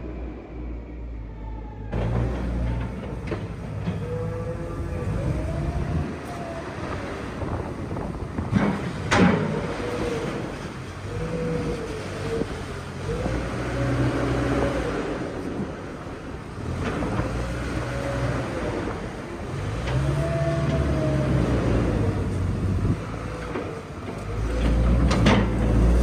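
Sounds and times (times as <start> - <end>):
farm machinery engine revving: 2.0 - 26.0.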